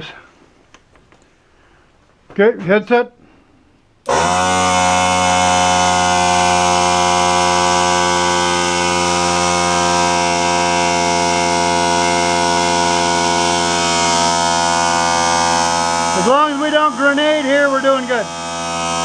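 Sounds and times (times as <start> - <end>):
air compressor motor humming: 4.0 - 19.0.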